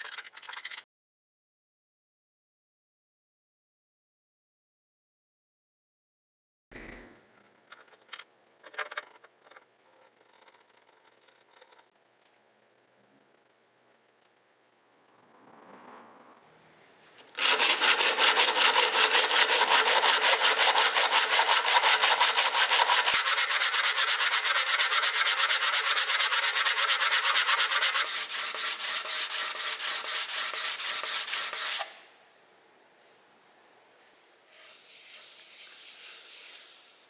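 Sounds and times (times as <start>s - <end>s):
sandpaper rubbing on wood: 17.3s - 32.0s, 34.5s - 37.0s.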